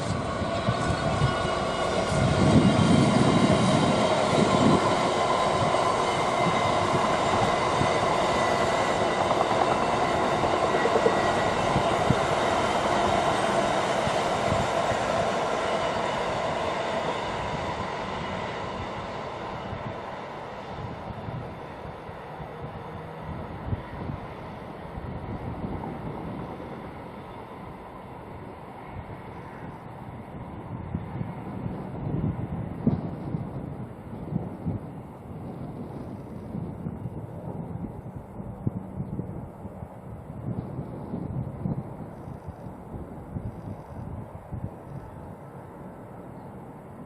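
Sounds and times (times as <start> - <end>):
train wagons rolling: 0.0 - 16.3
diesel locomotive passing: 0.0 - 47.0.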